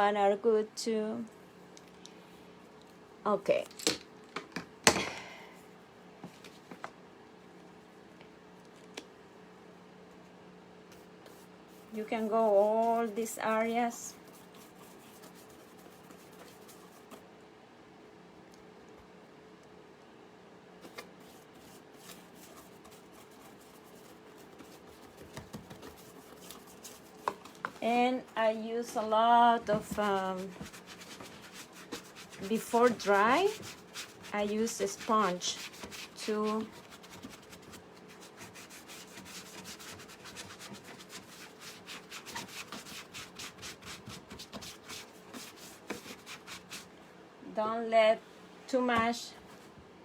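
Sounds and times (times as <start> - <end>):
steady low hum: 0.0 - 42.0
paintbrush rubbing and tapping: 10.9 - 17.2, 20.8 - 27.9, 29.6 - 46.9.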